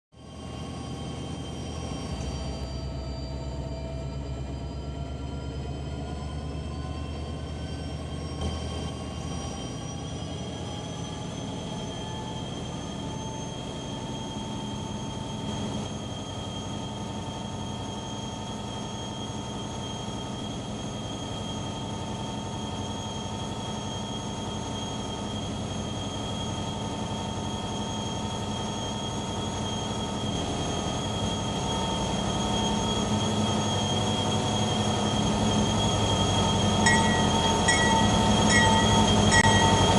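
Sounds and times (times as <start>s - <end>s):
train wheels squealing: 0.2s - 39.9s
train rumble: 0.4s - 39.9s.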